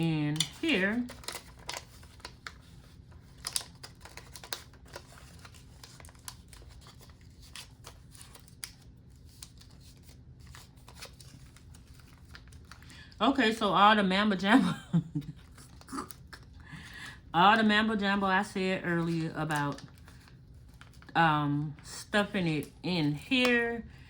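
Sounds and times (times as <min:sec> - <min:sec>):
paper rustling: 0:00.4 - 0:13.1, 0:18.8 - 0:21.1.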